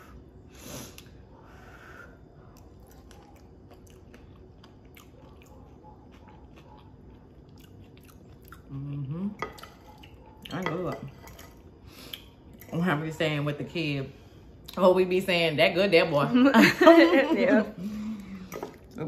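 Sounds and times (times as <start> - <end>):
person chewing: 2.4 - 10.4.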